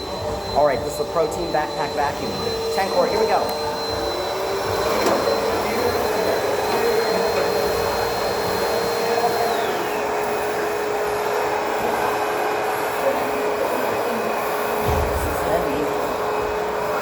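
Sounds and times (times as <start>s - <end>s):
backpack vacuum running: 0.0s - 17.0s.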